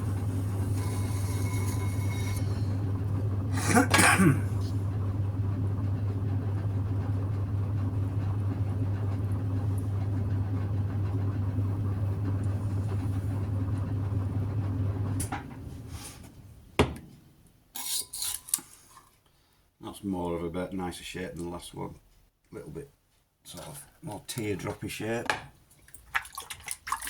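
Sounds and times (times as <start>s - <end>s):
potter's wheel motor humming: 0.0s - 15.9s.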